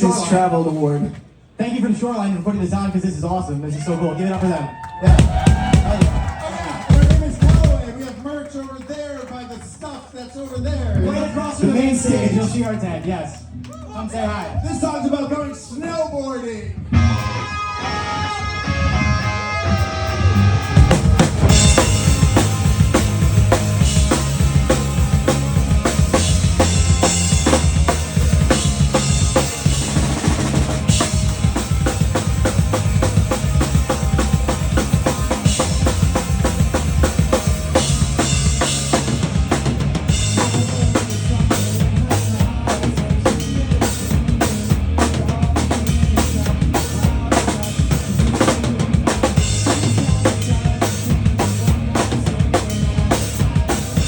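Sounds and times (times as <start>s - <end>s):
drum kit beat: 5.1s - 8.1s, 19.8s - 54.0s
live band playing: 5.1s - 8.1s, 16.9s - 54.0s
low bass notes: 18.3s - 54.0s.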